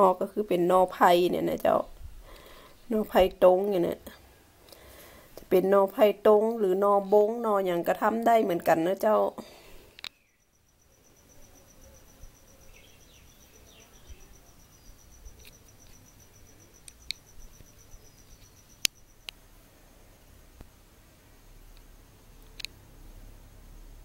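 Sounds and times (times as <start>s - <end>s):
sharp clicks: 9.9s - 10.2s, 15.0s - 19.4s, 21.7s - 22.8s
insect trilling: 10.1s - 19.4s.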